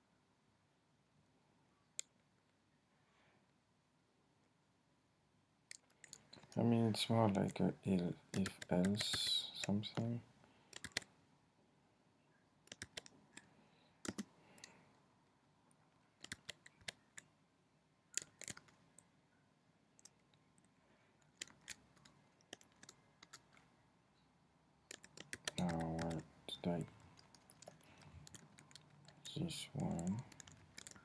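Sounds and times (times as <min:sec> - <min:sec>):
computer keyboard key presses: 0:08.3 - 0:10.1, 0:10.7 - 0:11.1, 0:12.7 - 0:14.3, 0:16.2 - 0:17.0, 0:18.2 - 0:18.7, 0:24.9 - 0:26.2, 0:27.2 - 0:29.3, 0:30.1 - 0:31.0.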